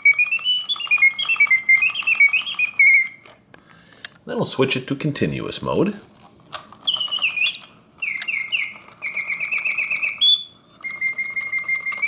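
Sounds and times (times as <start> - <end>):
mechanical birdsong whistle: 0.0 - 3.4, 6.8 - 12.0.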